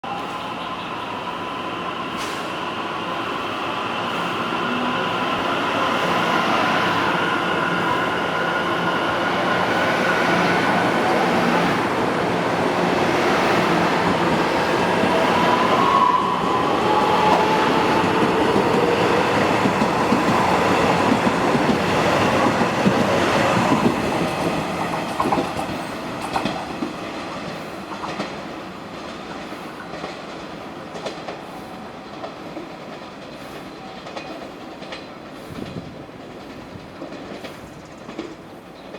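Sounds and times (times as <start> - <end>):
train wheels clattering over rails: 9.6 - 38.9.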